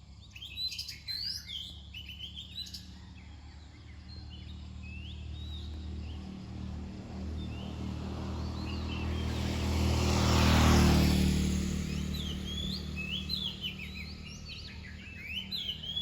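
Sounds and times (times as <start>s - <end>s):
vehicle passing: 3.8s - 16.0s.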